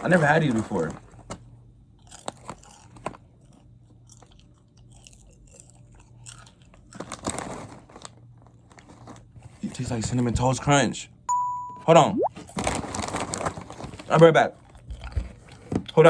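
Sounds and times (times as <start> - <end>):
person chewing crunchy popcorn: 1.9 - 8.2, 14.7 - 15.7.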